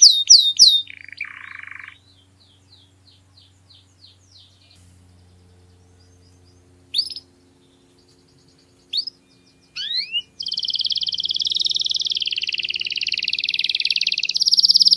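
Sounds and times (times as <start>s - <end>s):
faint steady hum: 0.0s - 14.9s
canary fast rolling trill: 4.4s - 14.9s
canary whistled notes: 9.0s - 14.9s.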